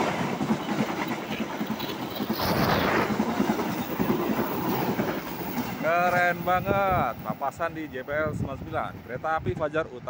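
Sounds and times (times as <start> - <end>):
wheels clattering over rail joints: 0.0 - 7.9
train rumble: 0.0 - 10.0.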